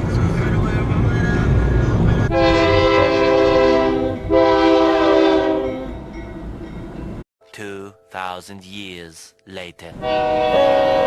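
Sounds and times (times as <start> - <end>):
train horn blasts: 2.3 - 6.0, 10.0 - 11.0.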